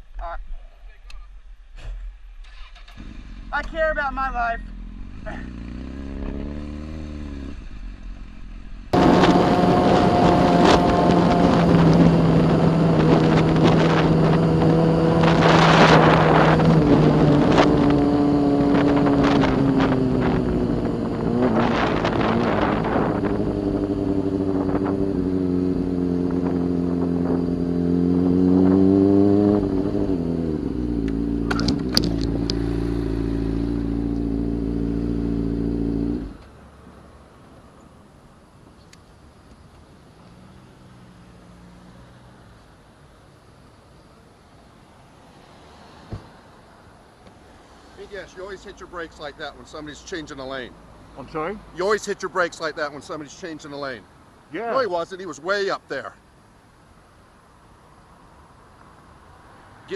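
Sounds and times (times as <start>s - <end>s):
motorcycle engine running: 2.6s - 36.4s
rushes of noise: 4.6s - 36.6s.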